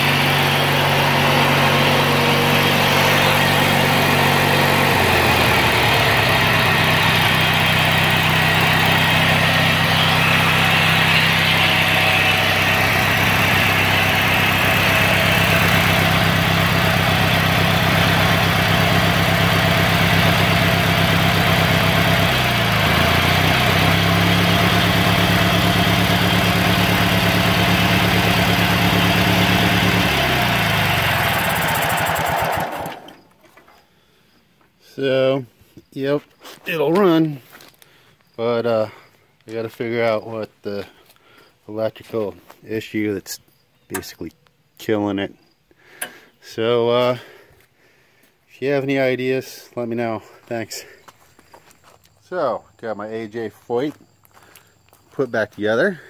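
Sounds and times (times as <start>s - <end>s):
garden tractor engine running: 0.0s - 33.8s, 43.9s - 44.3s.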